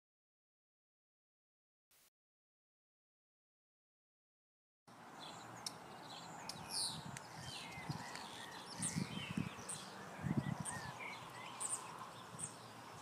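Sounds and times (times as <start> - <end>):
birds chirping and singing: 5.0 - 13.0.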